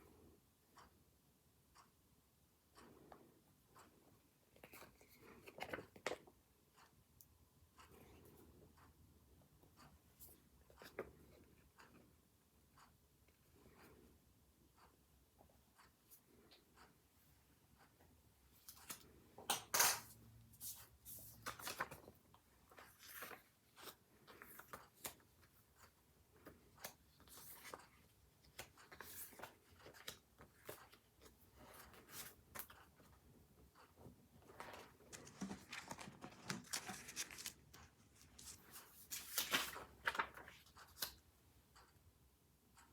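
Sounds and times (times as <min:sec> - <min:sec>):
paper rustling: 0:34.5 - 0:41.1
paper tearing: 0:35.2 - 0:38.6.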